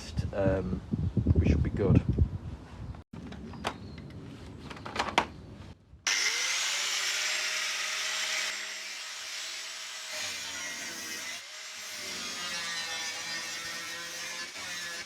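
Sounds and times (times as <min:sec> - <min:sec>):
handling knocks and clicks: 0:03.2 - 0:05.4
power cutting tool cutting steel: 0:06.1 - 0:15.0.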